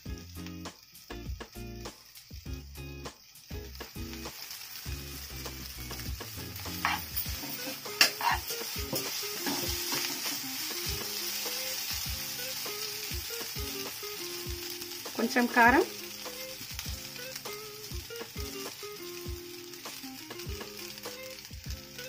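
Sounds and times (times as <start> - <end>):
noodles sizzling in a wok: 0.0 - 22.0
spatula scraping pan: 6.3 - 13.1.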